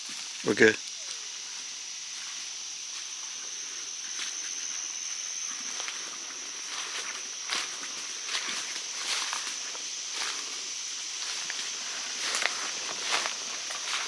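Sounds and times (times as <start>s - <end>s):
insects droning: 0.0s - 14.0s
footsteps through leaf litter: 5.5s - 14.0s.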